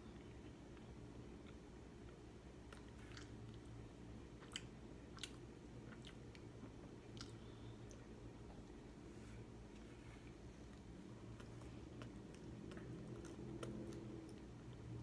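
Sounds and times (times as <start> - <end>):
faint chewing: 0.1 - 15.0.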